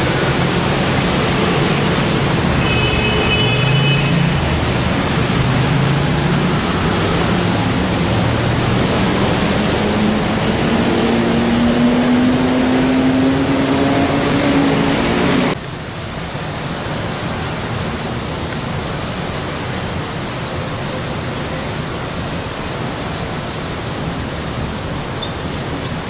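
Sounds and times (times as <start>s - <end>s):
traffic rush: 0.0s - 26.0s
vehicle engine hum rising: 3.7s - 15.6s.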